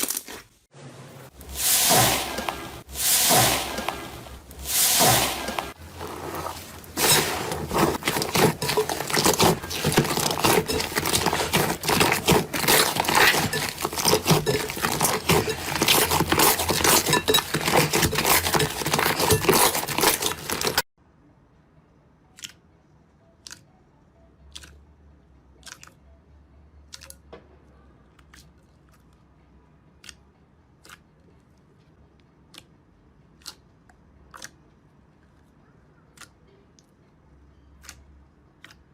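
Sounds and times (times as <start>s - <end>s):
crunchy material crushed by hand: 5.0s - 20.9s.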